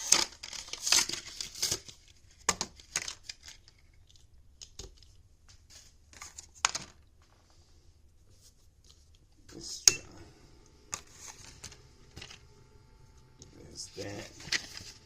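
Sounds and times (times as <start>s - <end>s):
packaging tearing and crinkling: 0.0s - 4.2s.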